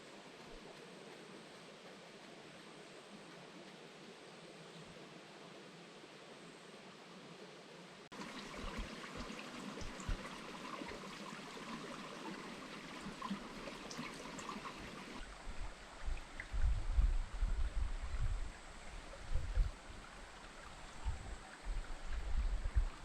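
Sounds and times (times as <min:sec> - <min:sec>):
river water flowing and splashing: 0:08.0 - 0:23.0
wind rumble on microphone: 0:08.2 - 0:11.7, 0:14.4 - 0:23.0.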